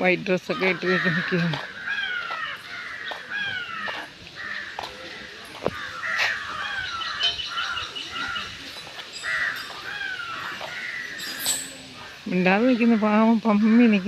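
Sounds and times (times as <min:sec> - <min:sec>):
crows cawing: 0:00.5 - 0:08.6, 0:09.2 - 0:11.4.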